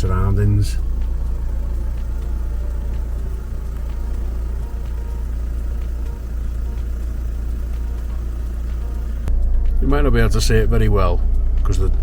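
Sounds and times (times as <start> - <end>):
van engine and road noise: 0.0 - 12.0.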